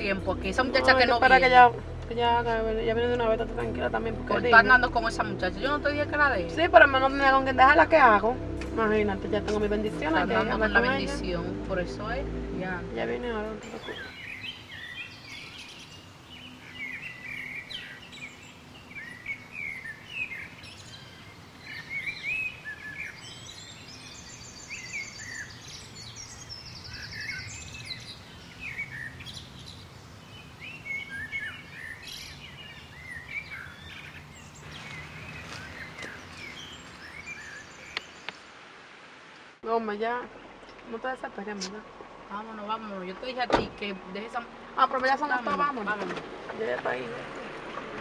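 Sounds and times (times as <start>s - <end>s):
birds chirping and calling: 0.0s - 38.5s
outdoor background hiss: 0.0s - 48.0s.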